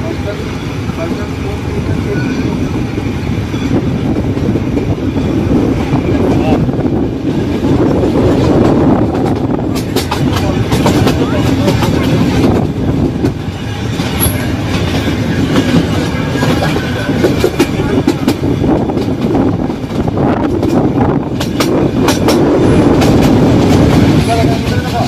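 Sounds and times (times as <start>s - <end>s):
train carriages rumbling: 0.0s - 25.0s
wheels clattering on rail joints: 7.4s - 25.0s.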